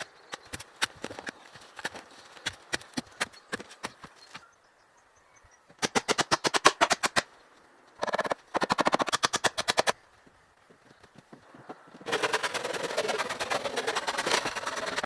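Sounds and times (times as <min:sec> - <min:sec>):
rapid sharp knocking: 0:12.1 - 0:15.0.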